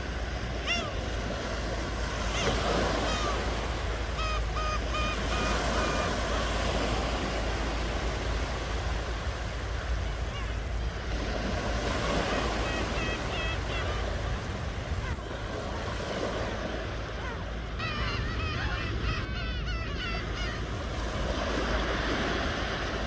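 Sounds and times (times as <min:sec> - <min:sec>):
ocean waves washing on shore: 0:00.0 - 0:23.0
short high calls: 0:00.6 - 0:01.2, 0:02.2 - 0:07.2, 0:17.2 - 0:20.9.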